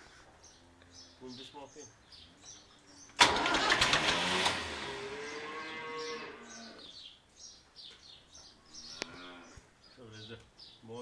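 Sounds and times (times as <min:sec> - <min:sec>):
small birds chirping: 0:00.0 - 0:03.2, 0:05.0 - 0:11.0
tractor starter cranking: 0:03.2 - 0:05.1
cow mooing: 0:04.9 - 0:06.9.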